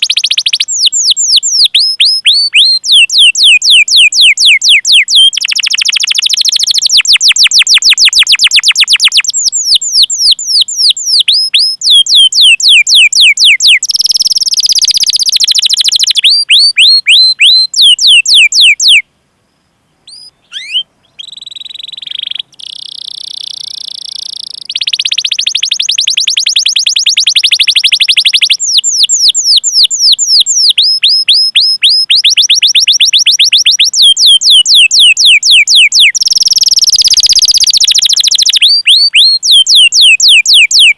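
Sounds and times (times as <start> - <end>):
canary singing trills: 0.0 - 19.1, 20.0 - 40.9.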